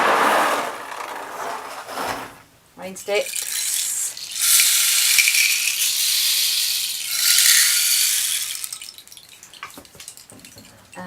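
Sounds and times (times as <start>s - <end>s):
rain stick beads pouring: 3.1s - 11.0s.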